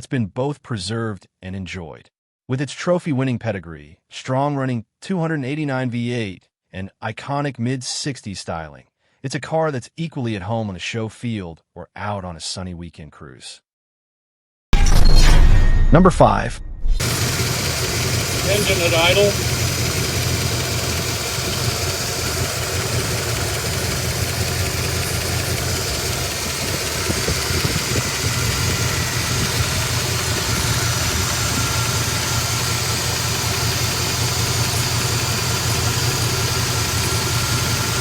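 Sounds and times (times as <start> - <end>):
car engine idling: 17.0 - 38.0.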